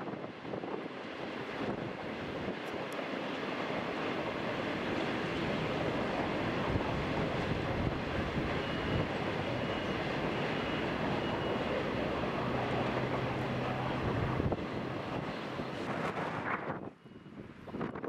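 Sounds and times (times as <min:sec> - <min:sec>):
train carriages rumbling and rattling: 0:00.2 - 0:18.0.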